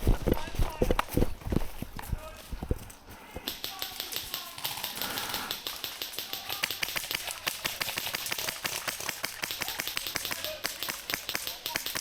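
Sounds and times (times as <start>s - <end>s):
airsoft guns firing: 3.3s - 12.0s.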